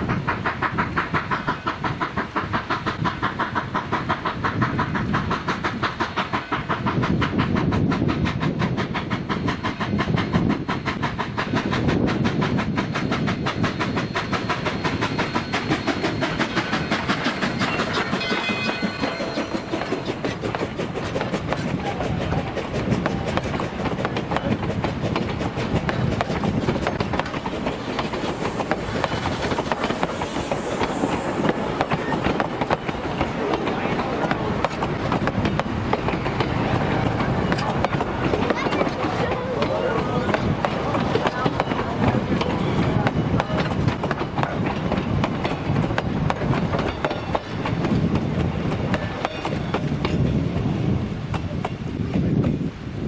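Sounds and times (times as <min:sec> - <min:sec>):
low train rumble: 0:00.0 - 0:53.0
train wheels clickety-clack: 0:00.0 - 0:53.0
high hiss: 0:27.0 - 0:37.8.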